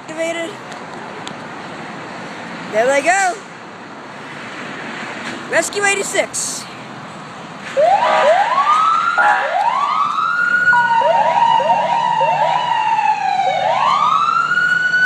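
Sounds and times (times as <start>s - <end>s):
emergency vehicle siren: 7.7s - 15.0s.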